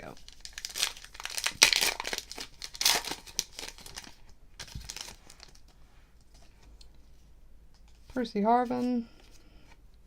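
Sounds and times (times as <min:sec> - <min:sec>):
card pack wrapper crinkling and tearing: 0:00.0 - 0:05.8.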